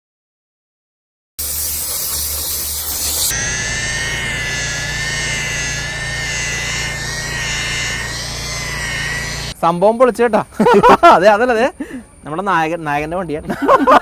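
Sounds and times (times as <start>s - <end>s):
steam jet hiss: 1.4s - 3.3s
machine hum with high whine: 2.1s - 9.6s.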